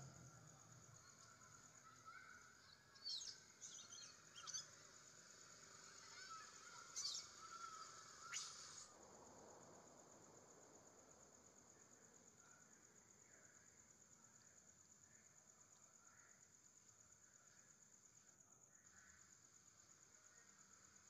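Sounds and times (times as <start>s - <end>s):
faint warbling bird calls: 0.8s - 5.0s, 5.7s - 8.9s
steady high hiss: 4.1s - 13.6s
short sharp bird chirps: 7.0s - 8.9s.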